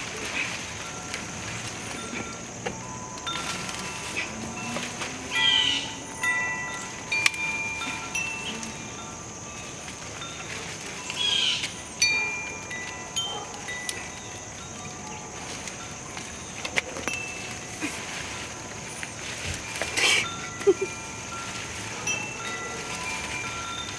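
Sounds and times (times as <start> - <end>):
wind chimes ringing: 0.0 - 23.9.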